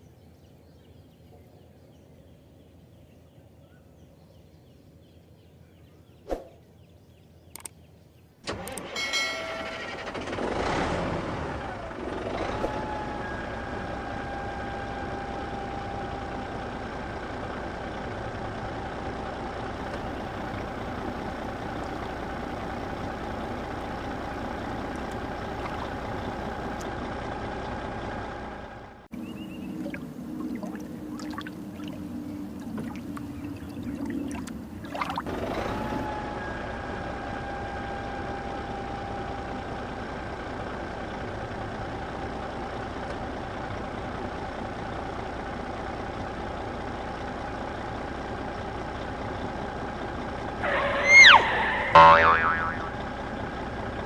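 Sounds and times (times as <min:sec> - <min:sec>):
sharp clicks: 0:07.5 - 0:07.8.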